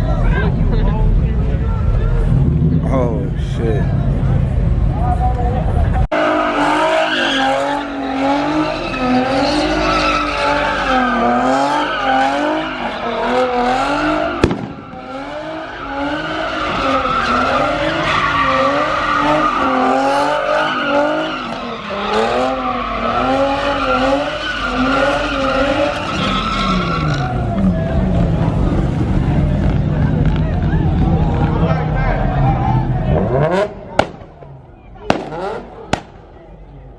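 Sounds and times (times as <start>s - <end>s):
tires squealing: 4.9s - 36.9s
car engine revving: 5.8s - 36.4s
sharp crack: 14.4s - 15.4s, 33.9s - 36.4s.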